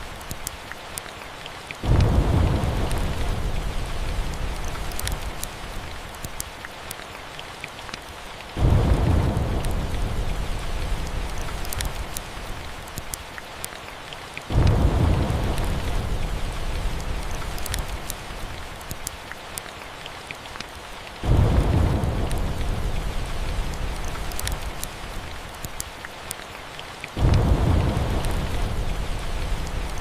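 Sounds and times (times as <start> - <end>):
steady rain: 0.0 - 30.0
thunder rumbling: 1.8 - 5.9, 8.6 - 12.8, 14.5 - 18.6, 21.2 - 25.3, 27.2 - 30.0.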